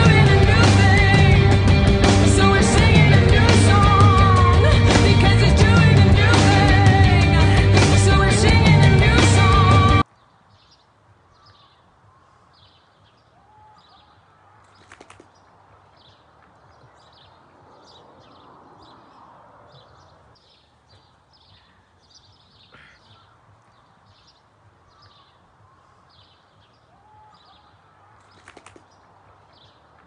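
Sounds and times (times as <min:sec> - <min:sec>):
sharp clicks: 0:14.6 - 0:15.4, 0:28.2 - 0:29.0.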